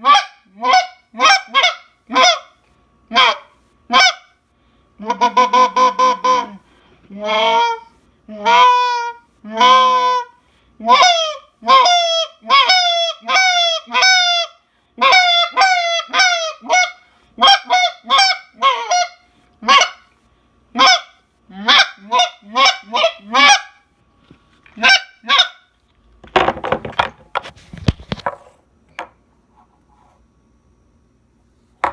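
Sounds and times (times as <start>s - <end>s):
goose call honking: 3.1s - 4.2s, 5.0s - 6.6s, 20.8s - 23.7s, 24.8s - 25.6s.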